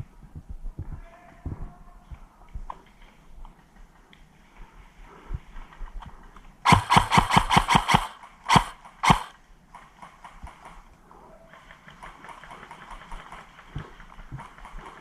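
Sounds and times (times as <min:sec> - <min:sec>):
faint rapid clicking: 0:05.6 - 0:15.0
airsoft gun shots: 0:06.7 - 0:09.4.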